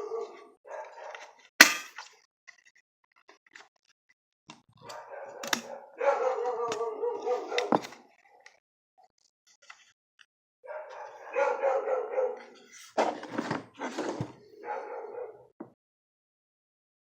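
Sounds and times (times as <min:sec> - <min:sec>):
dog barking loudly: 0:00.0 - 0:01.2, 0:04.8 - 0:07.8, 0:10.7 - 0:12.6, 0:14.6 - 0:15.5.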